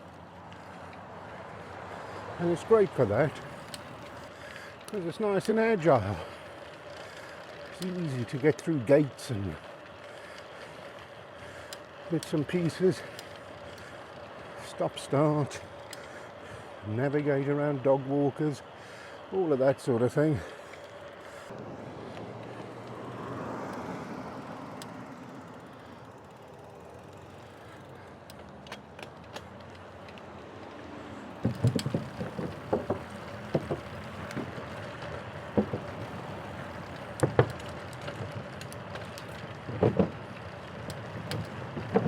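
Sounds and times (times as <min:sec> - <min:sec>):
bicycle tyre and wind hiss: 0:00.0 - 0:42.0
knocks and thumps: 0:31.4 - 0:34.6, 0:35.6 - 0:36.0, 0:39.7 - 0:40.2.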